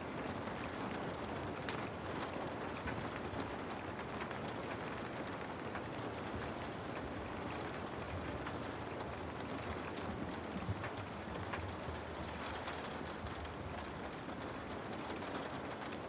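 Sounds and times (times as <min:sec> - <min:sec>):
raindrops ticking on a window: 0:00.0 - 0:16.0
steady rain hiss: 0:00.0 - 0:16.0.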